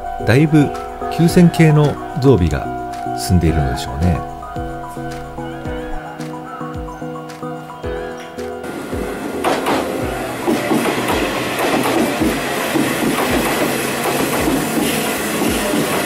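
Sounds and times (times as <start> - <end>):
train wheels rolling on rails: 8.6 - 16.0.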